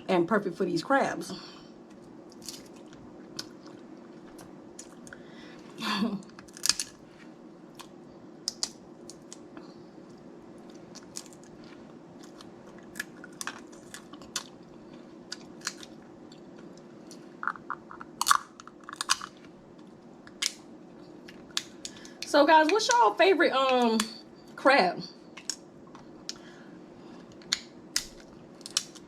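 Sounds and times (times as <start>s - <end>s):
person chewing: 1.9s - 5.7s, 6.3s - 7.0s, 7.7s - 22.2s
crab shell cracking: 2.3s - 3.6s, 6.3s - 7.0s, 7.7s - 9.5s, 10.7s - 11.6s, 12.2s - 14.6s, 15.3s - 16.0s, 17.4s - 19.4s, 20.2s - 20.7s, 27.4s - 29.0s.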